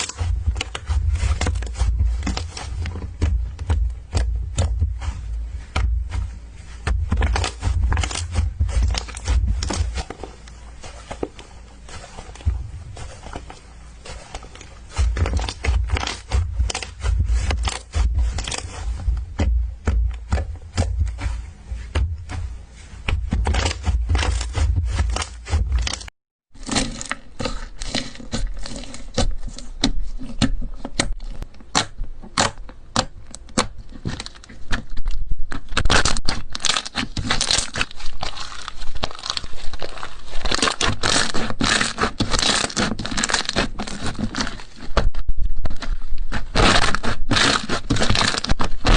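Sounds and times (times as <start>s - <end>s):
slime squeezed popping and crackling: 35.5s - 44.6s.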